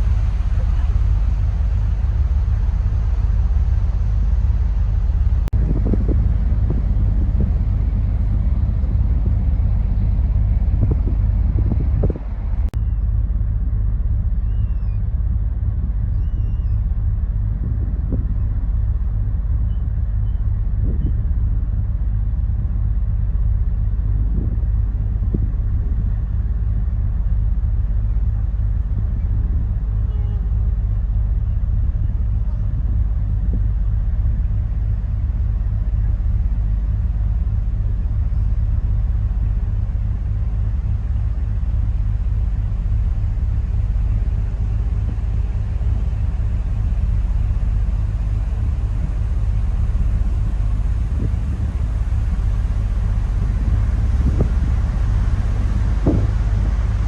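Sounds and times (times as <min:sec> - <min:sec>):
ship diesel engines rumbling: 0:00.0 - 0:57.0.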